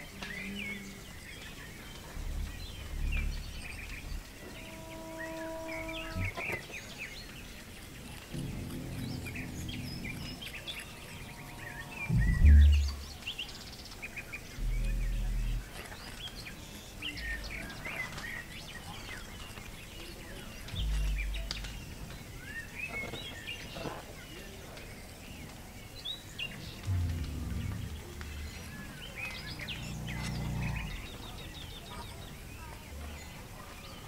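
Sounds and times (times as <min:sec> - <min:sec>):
birds chirping: 0:00.0 - 0:33.4
brief low rumbles: 0:02.0 - 0:06.4, 0:08.3 - 0:13.3, 0:14.6 - 0:15.8, 0:20.7 - 0:22.2, 0:26.8 - 0:31.6.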